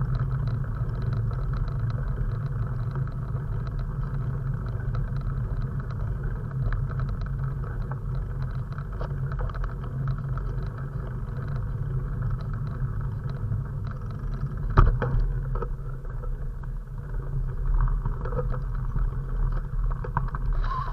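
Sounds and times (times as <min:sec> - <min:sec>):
wind and road noise: 0:00.0 - 0:20.9.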